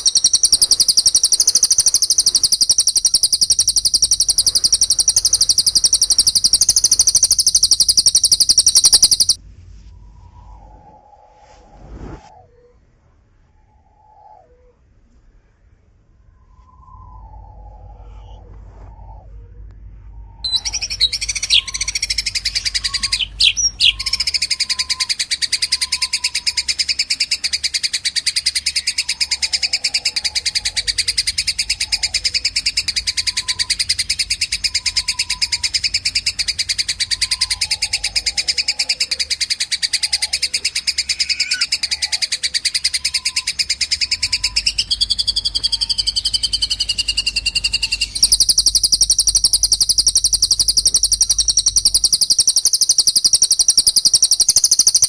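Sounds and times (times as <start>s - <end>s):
songbird trilling chatter: 0.0s - 9.4s, 20.5s - 55.0s.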